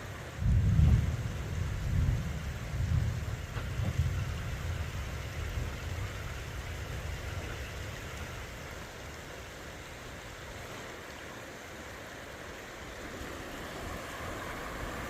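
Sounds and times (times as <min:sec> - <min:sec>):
low rumbling surges: 0:00.0 - 0:10.6, 0:11.9 - 0:15.0
water rushing: 0:03.2 - 0:15.0.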